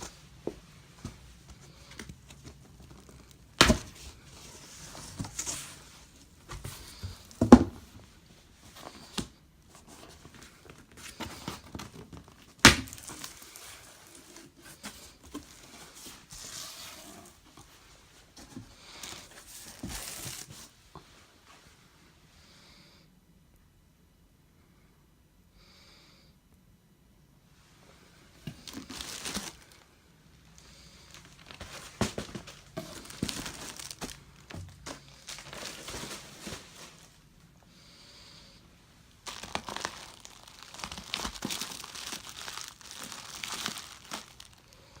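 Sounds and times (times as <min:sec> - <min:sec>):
packing material crinkling: 0:10.1 - 0:17.4, 0:28.4 - 0:29.9, 0:30.5 - 0:37.2, 0:39.2 - 0:45.0.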